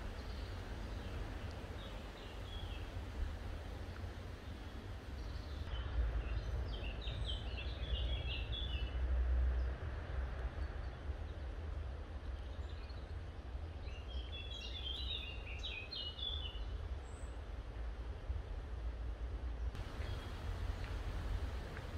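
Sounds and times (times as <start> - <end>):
steady low rumble: 17.6 - 21.9
bird chirping: 19.8 - 21.9.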